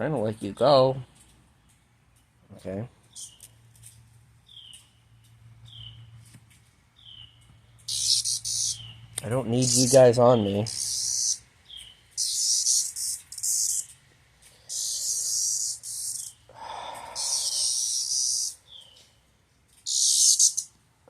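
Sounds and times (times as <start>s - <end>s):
cicadas buzzing in harsh bursts: 7.0s - 14.0s, 14.6s - 18.8s, 19.8s - 20.8s.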